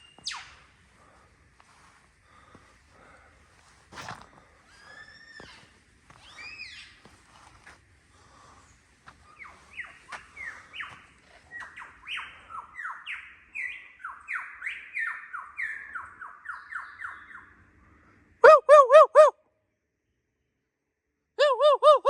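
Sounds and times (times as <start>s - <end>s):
lyrebird singing sweeping notes: 0.0s - 0.8s, 6.2s - 7.0s, 9.2s - 17.6s
loud arched bird calls: 4.7s - 7.1s, 8.2s - 18.0s.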